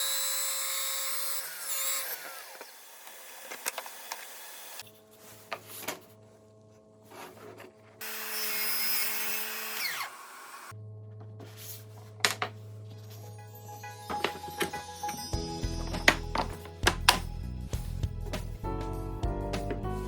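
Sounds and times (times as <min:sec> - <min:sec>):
power tools cutting wood: 0:00.0 - 0:04.8, 0:08.0 - 0:10.7.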